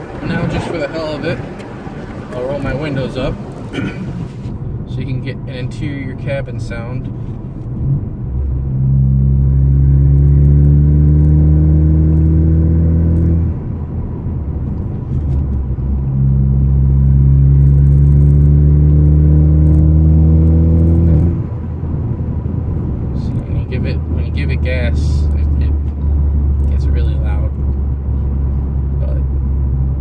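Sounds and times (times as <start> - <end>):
car exhaust drone accelerating: 0.0 - 30.0.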